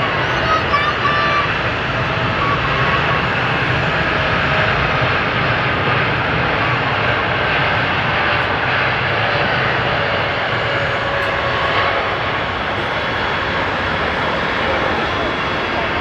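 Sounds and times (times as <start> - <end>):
jet engines at high power: 0.0 - 16.0.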